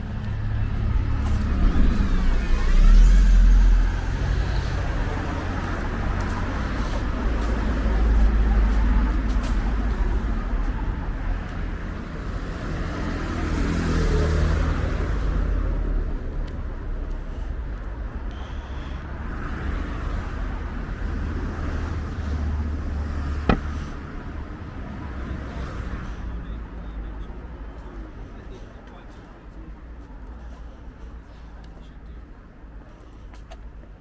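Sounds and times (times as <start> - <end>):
cars rumbling past: 0.0 - 30.3.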